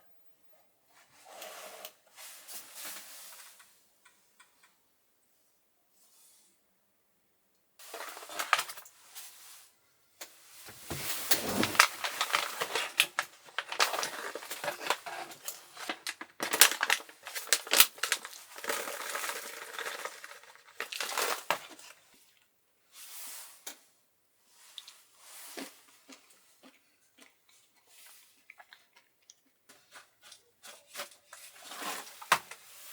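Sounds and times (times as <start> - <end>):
rustling and crinkling: 10.6 - 21.5.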